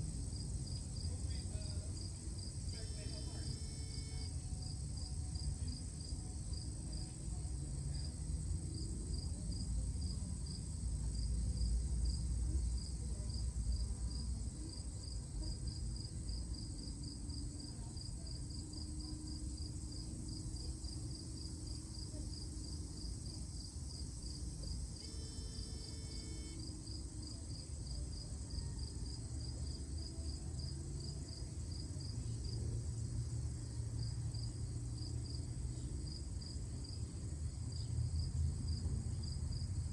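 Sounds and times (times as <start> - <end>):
insect chirping: 0.1 - 9.7, 18.0 - 32.6.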